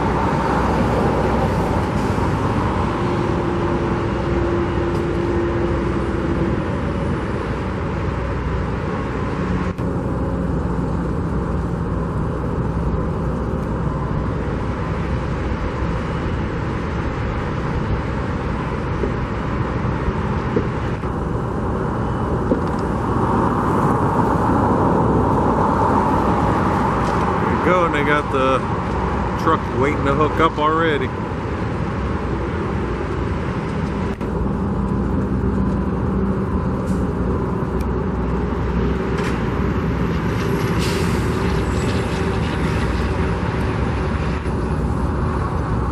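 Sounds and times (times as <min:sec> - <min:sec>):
traffic rumble: 0:00.0 - 0:45.9.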